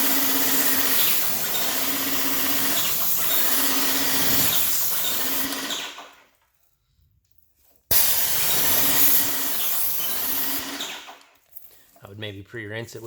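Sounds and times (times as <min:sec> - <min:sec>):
paint sprayer hiss: 0:00.0 - 0:05.8, 0:07.9 - 0:11.2
pump motor hum: 0:00.0 - 0:06.0, 0:07.9 - 0:11.1.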